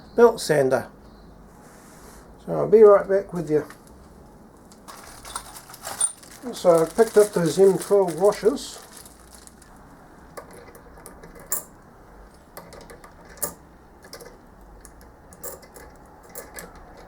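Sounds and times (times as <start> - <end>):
metal washers clinking: 4.7 - 7.6, 10.3 - 17.0.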